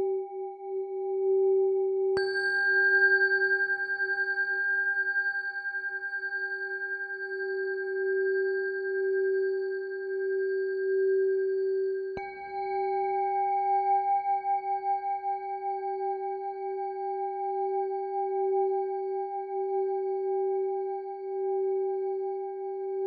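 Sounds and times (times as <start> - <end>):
singing bowls ringing: 2.2 - 16.6.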